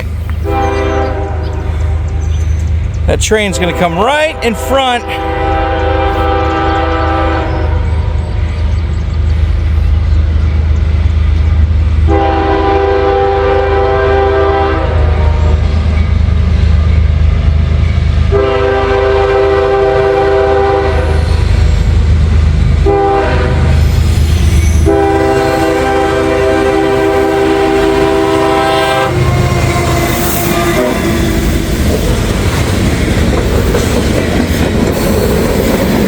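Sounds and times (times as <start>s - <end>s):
locomotive engine rumble: 0.0s - 36.0s
locomotive air horn: 0.4s - 2.0s, 3.4s - 8.2s, 12.1s - 15.7s, 18.3s - 21.4s, 22.8s - 23.8s, 24.8s - 31.5s.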